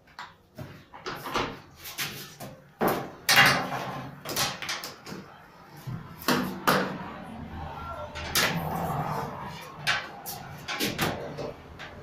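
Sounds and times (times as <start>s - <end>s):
hard parts knocking and rattling: 2.8s - 5.3s, 9.7s - 12.0s.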